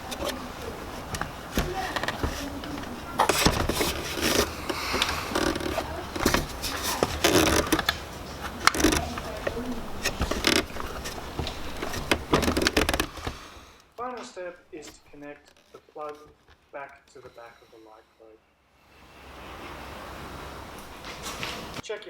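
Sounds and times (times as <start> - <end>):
rubber scraping and clicking on plastic: 0.0 - 16.7.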